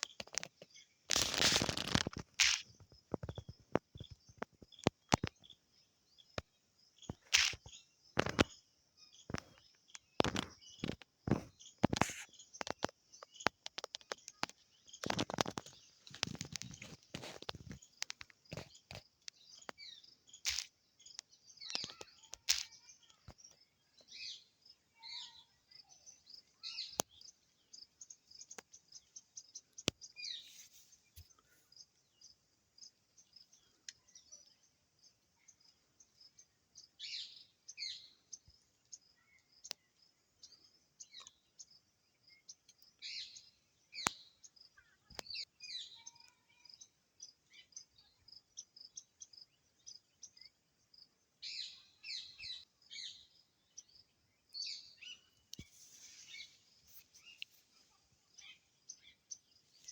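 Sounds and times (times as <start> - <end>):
birds chirping: 0.0 - 59.9
sharp clicks: 7.1 - 8.5, 9.3 - 19.8.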